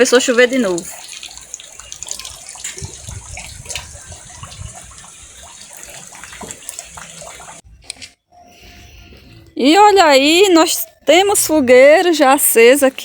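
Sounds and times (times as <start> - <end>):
drips and taps: 0.0 - 7.6.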